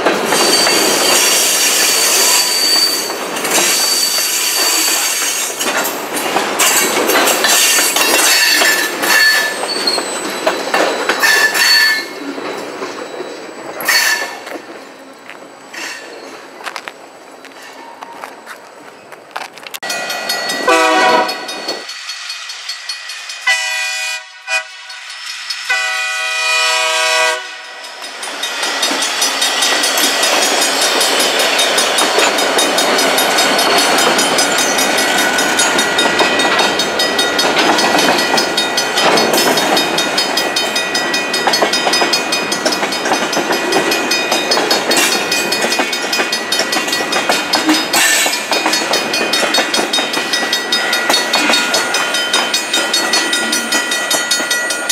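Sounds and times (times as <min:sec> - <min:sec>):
wheels clacking over rail joints: 0:00.0 - 0:21.9, 0:27.8 - 0:54.9
crossing signal bell ringing: 0:00.2 - 0:16.8, 0:19.8 - 0:26.9, 0:27.5 - 0:54.9
locomotive horn blasts: 0:20.7 - 0:21.5, 0:23.5 - 0:25.0, 0:25.7 - 0:27.7.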